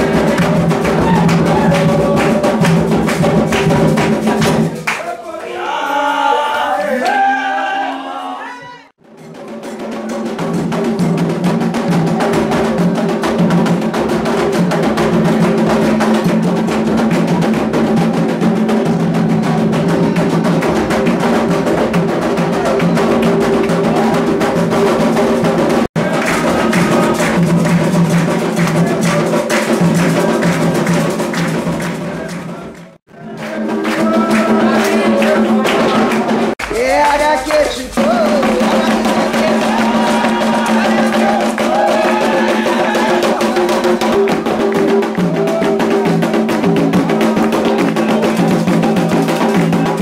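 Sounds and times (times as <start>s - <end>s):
hand drums beating fast: 0.0s - 5.0s, 9.0s - 50.0s
wood block percussion: 0.0s - 5.4s, 9.0s - 50.0s
voices singing held notes: 26.0s - 50.0s.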